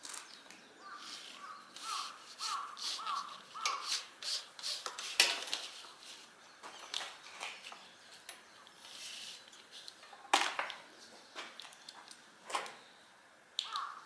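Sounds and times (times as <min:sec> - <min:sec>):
crow cawing: 0:00.8 - 0:04.0, 0:13.6 - 0:14.0
short rasping noises: 0:00.9 - 0:05.2.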